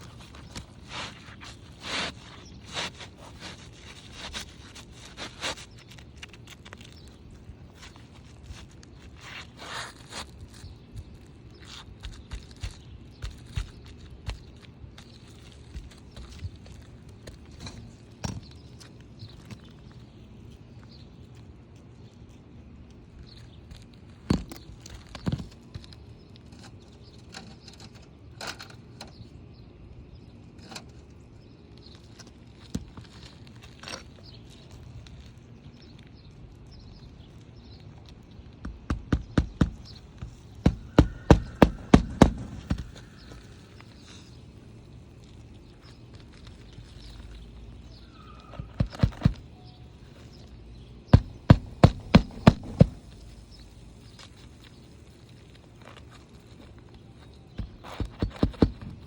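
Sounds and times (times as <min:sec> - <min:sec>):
hammer striking nails: 0:40.6 - 0:43.0, 0:51.2 - 0:53.1.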